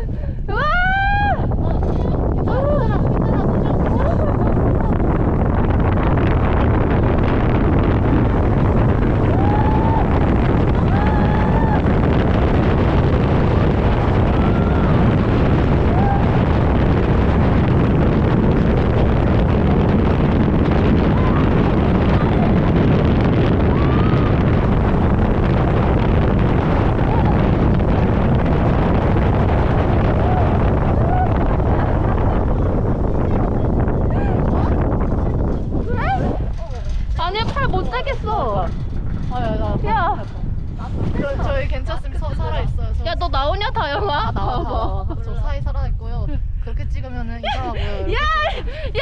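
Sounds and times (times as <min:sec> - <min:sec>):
strong wind buffeting microphone: 0:00.0 - 0:49.0.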